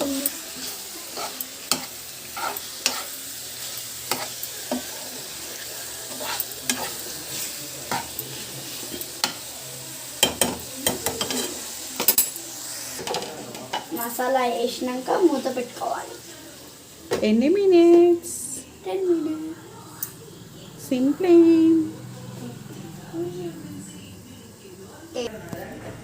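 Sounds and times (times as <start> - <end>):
chicken sizzling in a pan: 0.0 - 23.5
spatula scraping and knocking pan: 0.6 - 3.2.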